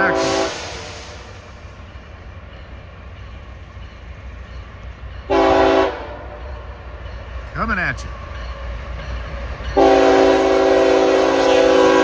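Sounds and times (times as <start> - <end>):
locomotive air horn blast: 0.0 - 1.6, 5.3 - 6.4, 9.8 - 12.0
train rumbling: 0.0 - 12.0.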